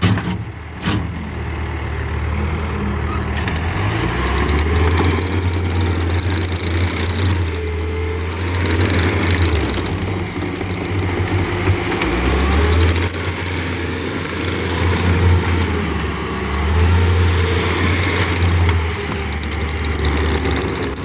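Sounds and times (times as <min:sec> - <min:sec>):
skid steer diesel engine drone: 0:00.0 - 0:21.0.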